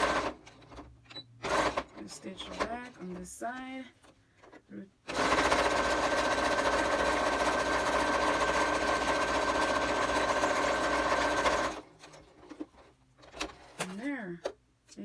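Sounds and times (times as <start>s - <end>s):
sewing machine running: 0.0s - 0.5s, 1.4s - 2.7s, 5.1s - 12.6s.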